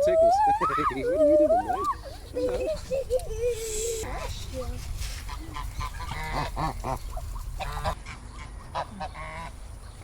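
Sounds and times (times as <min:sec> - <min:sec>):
geese honking: 0:05.3 - 0:09.6.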